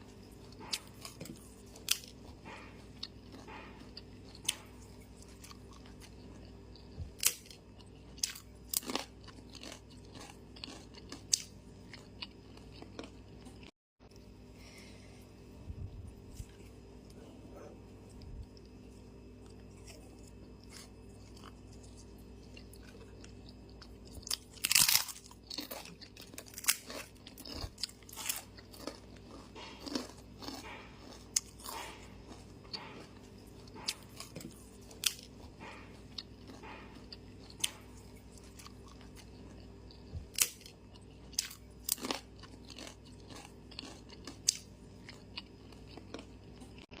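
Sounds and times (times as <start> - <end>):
crunchy chewing: 0.0 - 14.2, 15.6 - 47.0
faint steady hum: 0.0 - 47.0.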